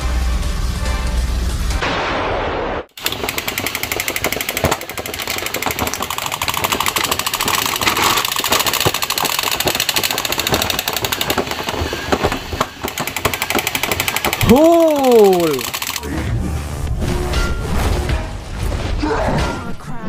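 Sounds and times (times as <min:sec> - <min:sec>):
toy mechanical rattle: 0:03.0 - 0:16.1.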